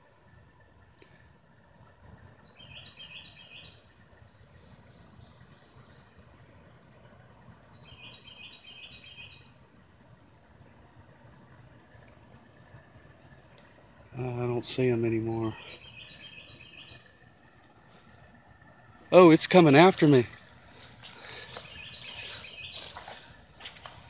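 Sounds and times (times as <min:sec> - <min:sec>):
songbird singing: 0:00.0 - 0:24.0
steady high-pitched whine: 0:00.0 - 0:24.0.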